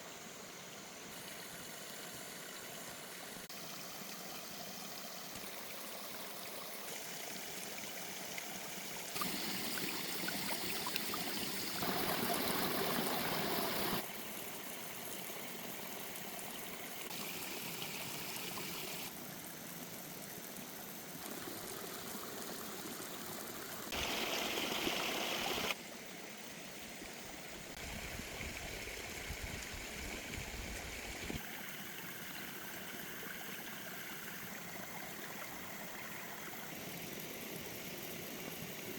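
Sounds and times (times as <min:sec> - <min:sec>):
water rushing: 0:09.1 - 0:14.1, 0:23.9 - 0:25.8.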